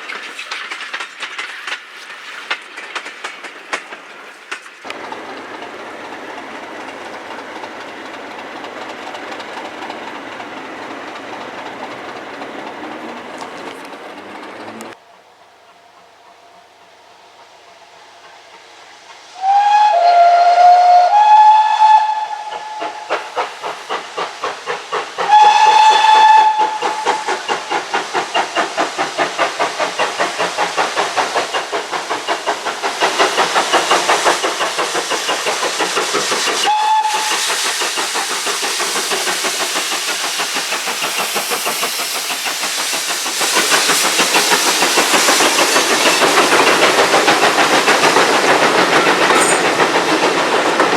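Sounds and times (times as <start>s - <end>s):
hiss of steam: 0.0s - 15.0s, 16.7s - 50.9s
locomotive exhaust chuffs: 4.9s - 15.0s, 21.1s - 50.9s
steam locomotive whistle: 17.8s - 23.4s, 25.2s - 27.5s, 36.6s - 37.6s, 49.4s - 49.8s.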